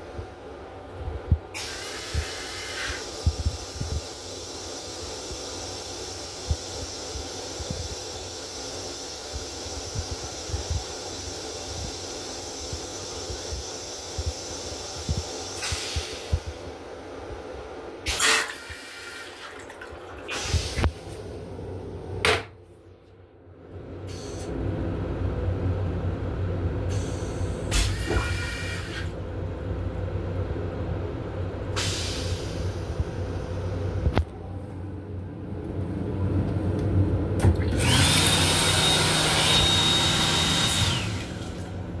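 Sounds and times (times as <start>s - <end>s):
railcar low rumble: 0.0s - 18.1s, 20.3s - 38.2s, 40.6s - 42.0s
rushing blower with high whine: 37.6s - 42.0s.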